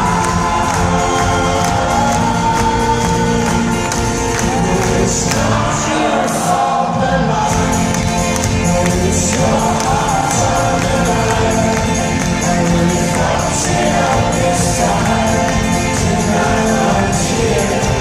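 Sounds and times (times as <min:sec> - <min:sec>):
crowd noise: 0:00.0 - 0:18.0
live folk-rock band playing: 0:00.0 - 0:18.0
voices singing: 0:00.0 - 0:18.0.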